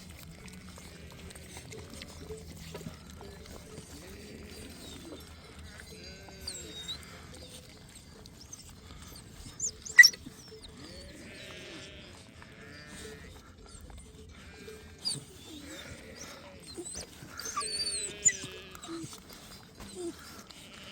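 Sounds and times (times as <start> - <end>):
sheep bleating: 0.6 - 7.3, 10.9 - 13.5, 14.3 - 19.2, 20.1 - 20.9.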